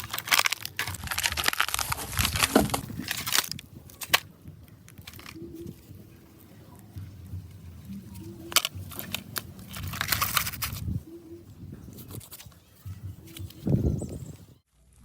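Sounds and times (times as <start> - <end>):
crunching and crinkling: 0.0 - 15.0.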